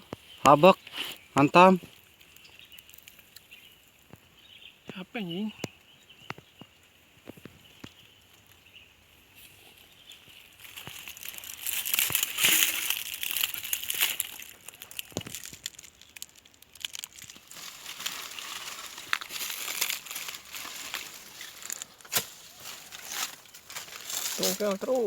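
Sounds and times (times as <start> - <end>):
roots cracking: 0.0 - 4.2, 9.7 - 25.0
soil and leaves crackling: 0.0 - 25.0.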